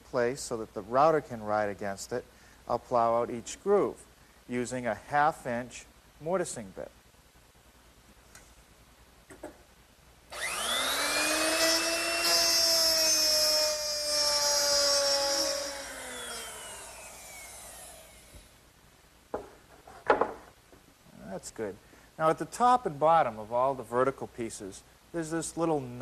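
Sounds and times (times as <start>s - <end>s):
router whining while cutting wood: 10.3s - 18.5s.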